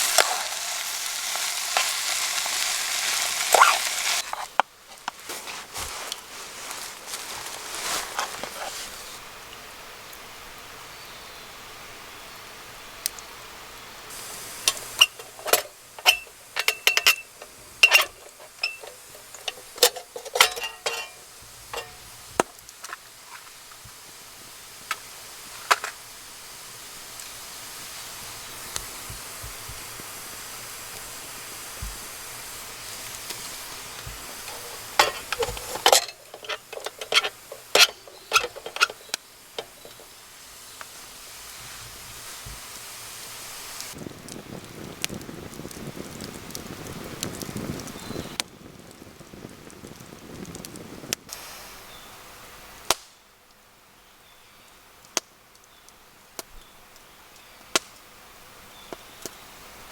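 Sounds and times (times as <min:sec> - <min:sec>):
utensils clinking against cookware: 0:00.0 - 0:04.6, 0:14.6 - 0:22.1, 0:34.4 - 0:40.1
cooking hiss: 0:00.0 - 0:59.9.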